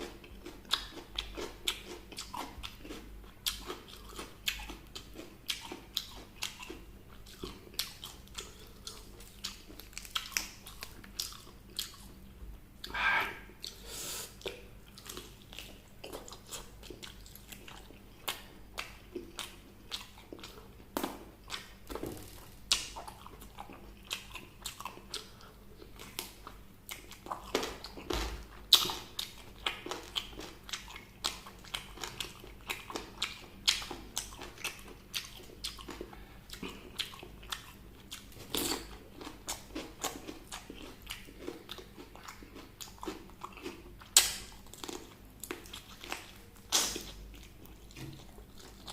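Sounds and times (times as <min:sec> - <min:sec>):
person chewing crunchy food: 0:00.0 - 0:48.9.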